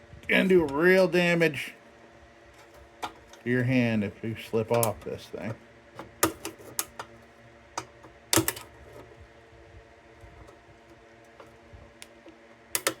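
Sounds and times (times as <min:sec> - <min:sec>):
screwdriver clicks and scrapes on metal: 0:04.7 - 0:07.1.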